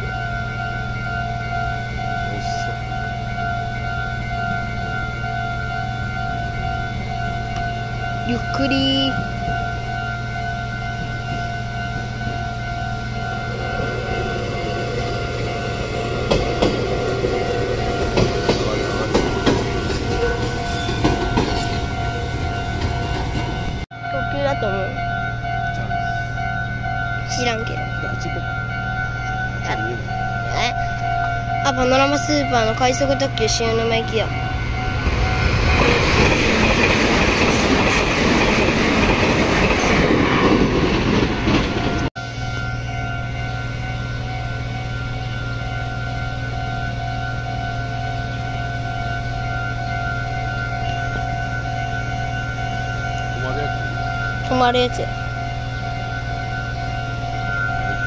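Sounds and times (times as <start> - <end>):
crossing warning bell ringing: 0.0 - 58.0
electric train passing: 0.0 - 58.0
wheels clattering over rail joints: 13.3 - 23.8, 31.9 - 42.1
train wheels clicking over rail joints: 13.8 - 23.8.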